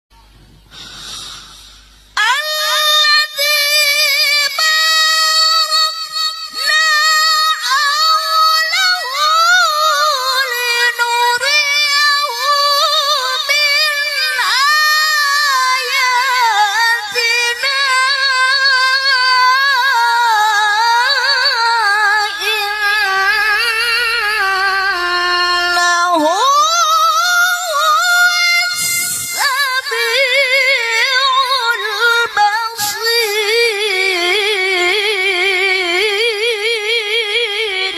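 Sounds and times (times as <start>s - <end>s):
short breaths: 0.2s - 2.2s, 28.7s - 29.4s
woman chanting melodically: 2.2s - 37.9s.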